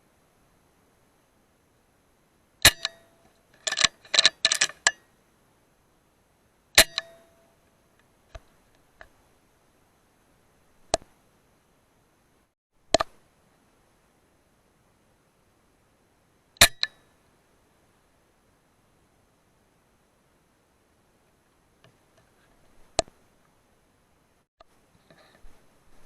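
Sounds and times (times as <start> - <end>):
air gun shots with metallic ring: 2.6 - 3.1, 6.8 - 7.3, 16.6 - 17.0.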